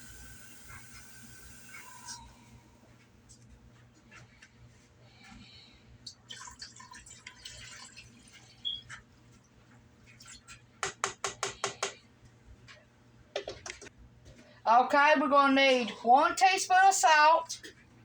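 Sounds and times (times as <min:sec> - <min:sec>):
water splashing into pot: 0:06.2 - 0:08.4.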